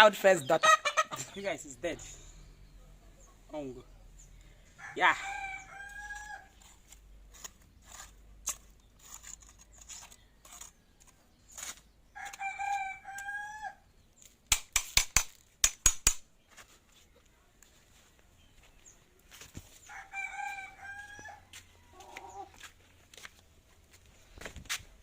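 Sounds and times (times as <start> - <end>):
rooster crowing: 4.8 - 6.6, 12.2 - 13.8, 19.8 - 22.5
sharp clicks: 14.5 - 16.2.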